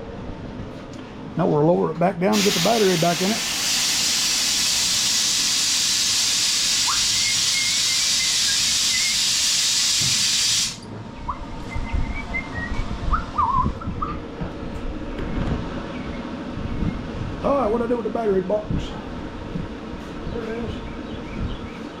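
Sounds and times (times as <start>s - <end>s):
hydraulic lift hissing: 2.3s - 10.8s.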